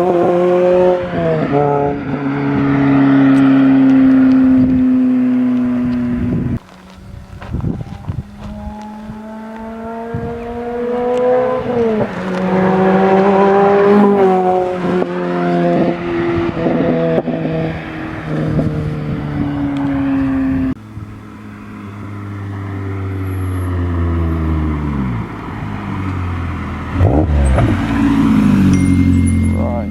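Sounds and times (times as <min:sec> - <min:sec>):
car engine running under load: 0:00.0 - 0:29.8.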